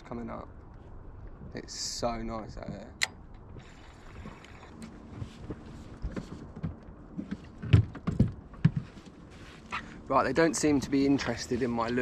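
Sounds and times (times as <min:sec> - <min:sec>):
wind: 0:00.0 - 0:12.0
water lapping: 0:03.6 - 0:05.4.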